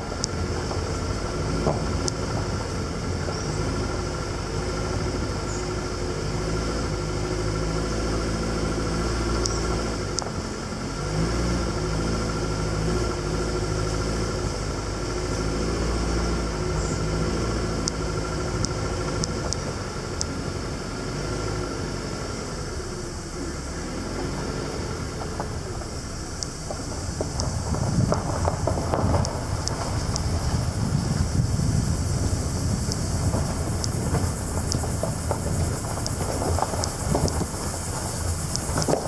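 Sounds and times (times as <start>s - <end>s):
jeep engine running: 0.0s - 39.0s
clicks and rattles: 32.9s - 39.0s.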